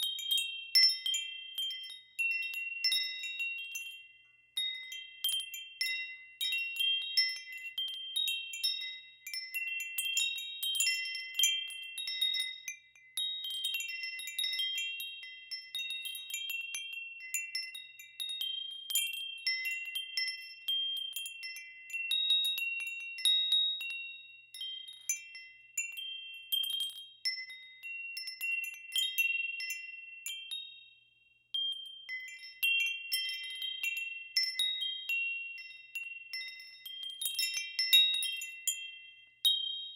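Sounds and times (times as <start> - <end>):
metal wind chimes ringing: 0.0 - 39.9.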